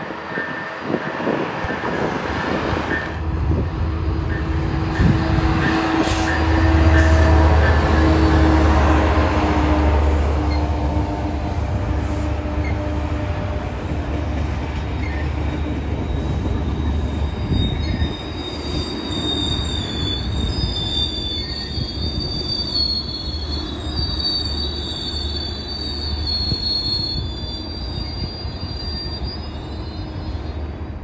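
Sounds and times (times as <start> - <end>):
train rumbling past: 0.0 - 31.0
high wavering wheel squeal: 14.9 - 30.8.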